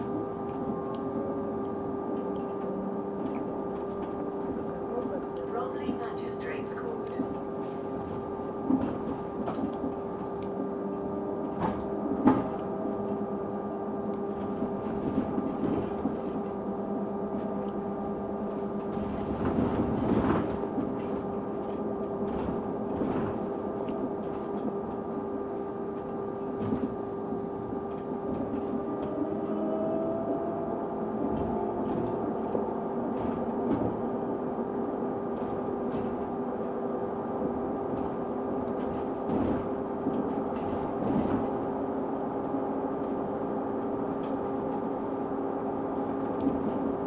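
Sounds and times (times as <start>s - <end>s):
steady constant-pitch tone: 0.0s - 8.8s
bus engine running: 0.0s - 47.0s.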